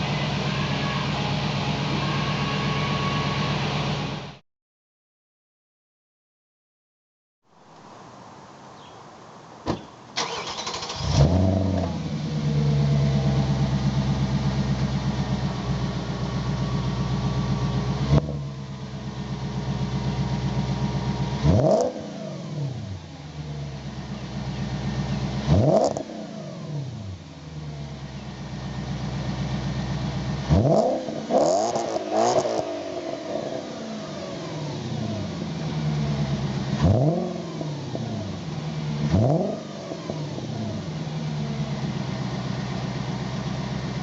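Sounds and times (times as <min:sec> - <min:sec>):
car engine idling: 0:00.0 - 0:04.4, 0:09.5 - 0:44.0
car engine starting: 0:00.0 - 0:04.4, 0:10.0 - 0:44.0
car engine revving: 0:10.2 - 0:44.0.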